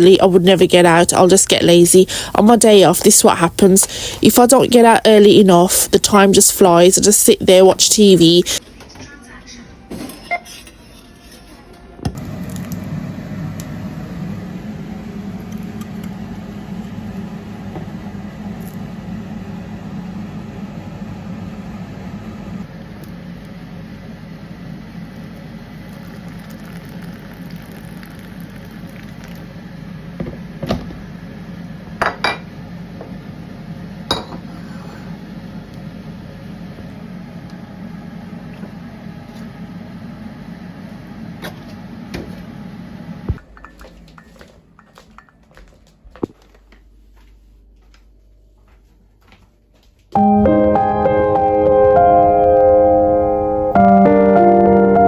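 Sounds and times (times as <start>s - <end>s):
gentle piano music: 50.2s - 55.0s.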